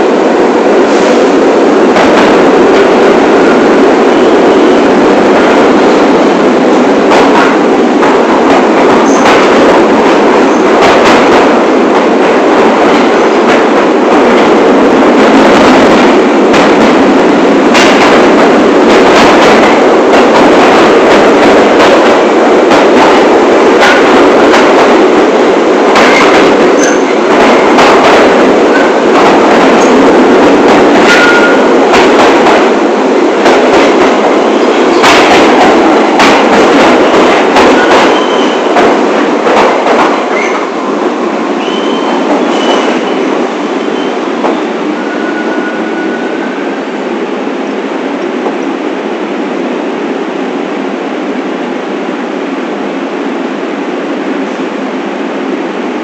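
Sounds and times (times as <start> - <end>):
subway train rumbling on rails: 0.0 - 56.0.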